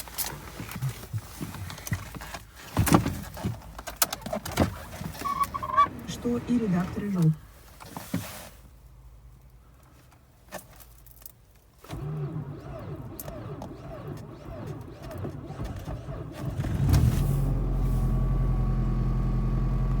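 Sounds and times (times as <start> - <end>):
starter motor cranking: 11.8 - 20.0
car engine idling: 11.9 - 20.0.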